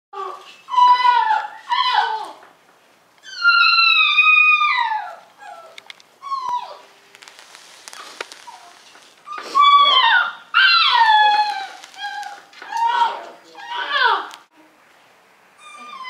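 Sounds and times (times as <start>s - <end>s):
puppy whining: 3.2s - 7.0s, 7.9s - 14.3s, 15.6s - 16.0s.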